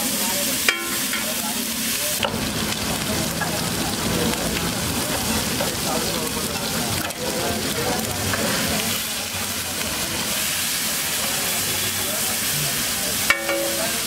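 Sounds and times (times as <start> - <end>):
food sizzling on a griddle: 0.0 - 14.0.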